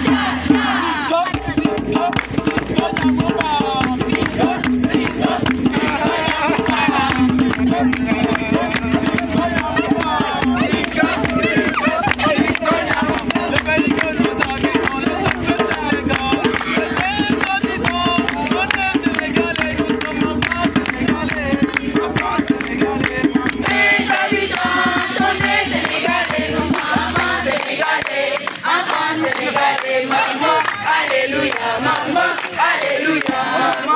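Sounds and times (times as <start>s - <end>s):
group of voices chanting: 0.0s - 13.6s, 23.0s - 33.9s
fast percussive beat: 0.0s - 33.9s.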